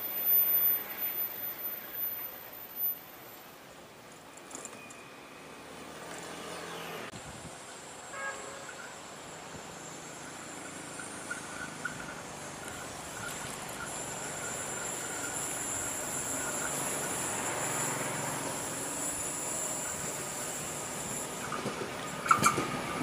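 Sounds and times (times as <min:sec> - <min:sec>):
diesel train approaching: 0:00.0 - 0:23.0.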